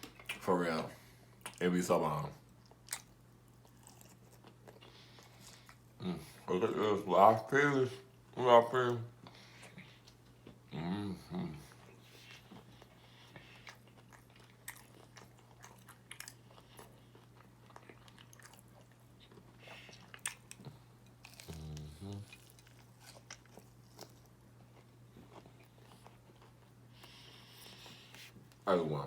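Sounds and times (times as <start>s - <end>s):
faint low hum: 0.0s - 29.0s
person chewing: 2.4s - 5.9s, 11.5s - 28.6s.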